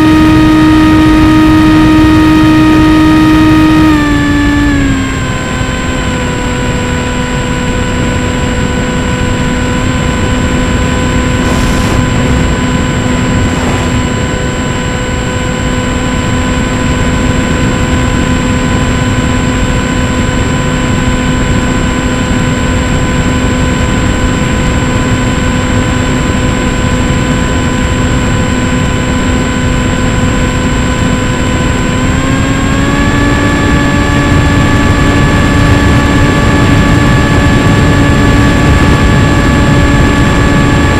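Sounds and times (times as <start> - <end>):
model airplane motor droning: 0.0 - 40.9
wind rush: 9.8 - 15.9.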